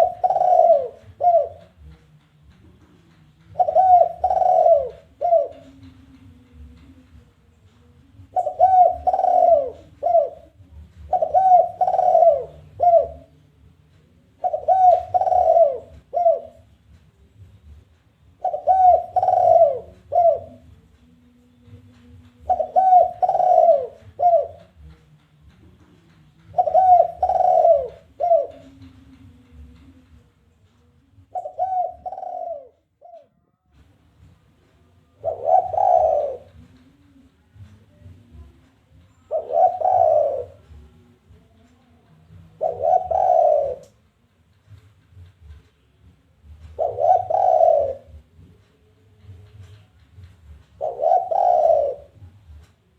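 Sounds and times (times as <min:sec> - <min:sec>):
dove cooing: 0:00.0 - 0:02.0, 0:03.4 - 0:07.0, 0:08.2 - 0:13.4, 0:14.2 - 0:16.8, 0:18.3 - 0:20.8, 0:22.3 - 0:24.9, 0:26.4 - 0:30.1, 0:31.2 - 0:33.4, 0:35.1 - 0:38.6, 0:39.3 - 0:44.0, 0:46.6 - 0:48.6, 0:50.5 - 0:52.6.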